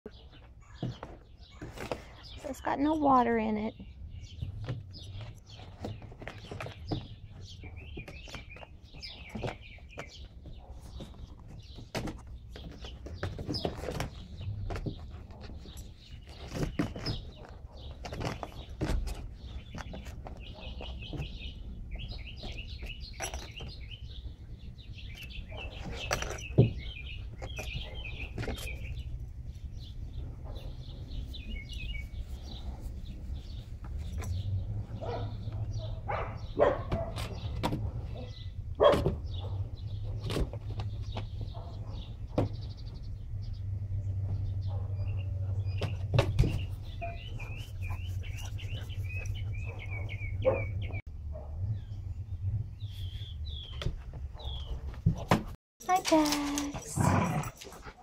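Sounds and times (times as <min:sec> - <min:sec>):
puppies squeaking: 0:45.7 - 0:51.0.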